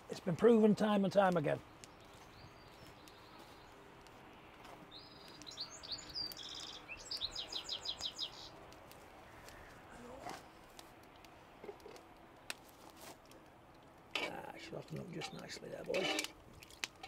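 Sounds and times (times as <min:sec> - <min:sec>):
songbird singing: 0:01.0 - 0:09.7.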